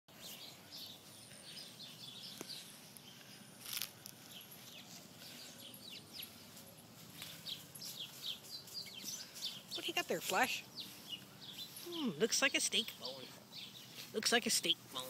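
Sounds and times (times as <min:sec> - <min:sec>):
small birds chirping: 0:00.1 - 0:15.0.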